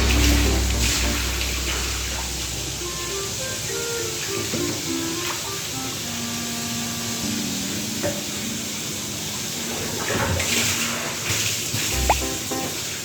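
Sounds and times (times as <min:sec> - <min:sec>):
bath water splashing: 0:00.0 - 0:05.5, 0:09.7 - 0:13.0
soft background music: 0:11.9 - 0:13.0.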